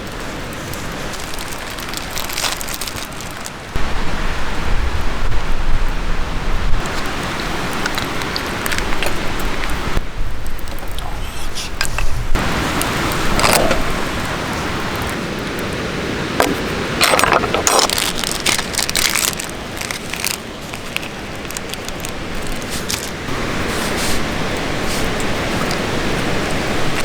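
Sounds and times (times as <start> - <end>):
campfire hissing and crackling: 0.0 - 27.0.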